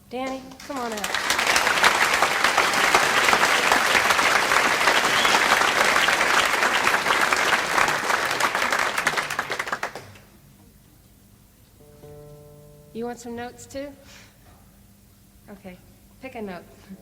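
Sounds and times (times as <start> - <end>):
audience applauding and cheering: 0.3 - 10.3.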